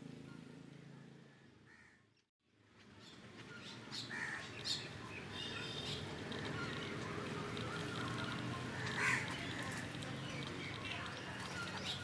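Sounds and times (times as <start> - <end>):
birds chirping: 2.9 - 12.0.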